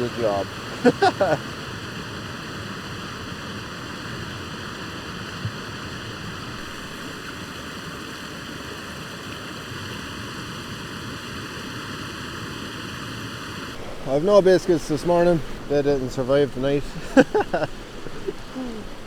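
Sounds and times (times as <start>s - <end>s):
stream rushing: 0.0s - 7.6s, 13.6s - 19.0s.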